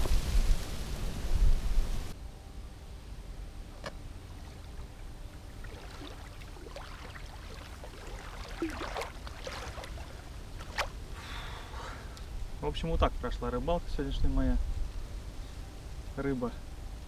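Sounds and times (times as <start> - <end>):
low wind rumble: 0.0 - 17.0
river water lapping at bank: 4.4 - 11.4
faint small splashes: 4.6 - 11.2.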